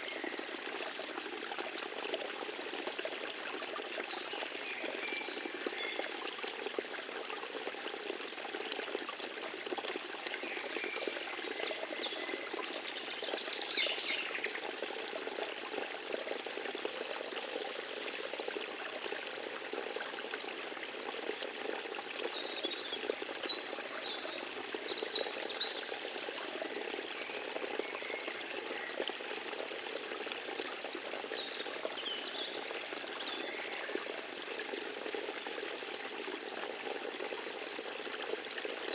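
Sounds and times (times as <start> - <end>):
stream trickling: 0.0 - 38.9.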